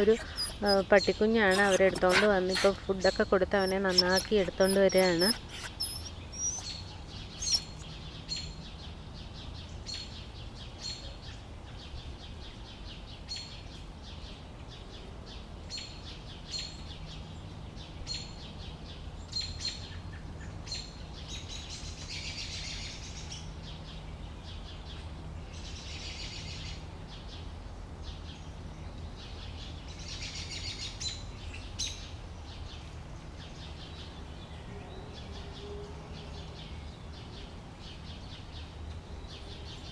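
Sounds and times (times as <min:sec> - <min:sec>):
bird chirps: 0:00.0 - 0:00.8, 0:01.5 - 0:06.8, 0:07.4 - 0:07.8
buzzy bird trills: 0:03.6 - 0:06.7.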